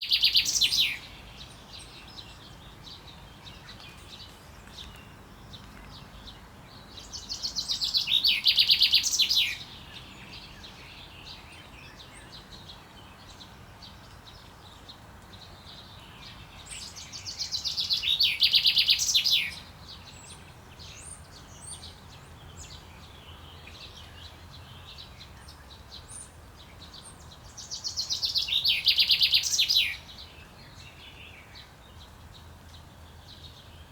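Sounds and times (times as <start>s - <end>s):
chaffinch singing: 0.0s - 13.3s, 26.9s - 31.7s.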